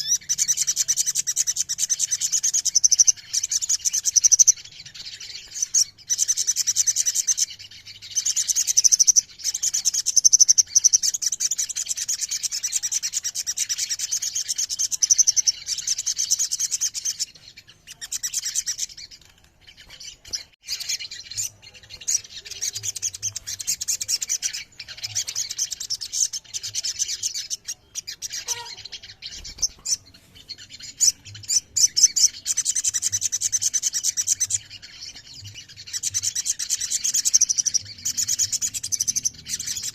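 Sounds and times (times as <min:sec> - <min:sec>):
bird singing rolling trills: 0:00.0 - 0:39.9.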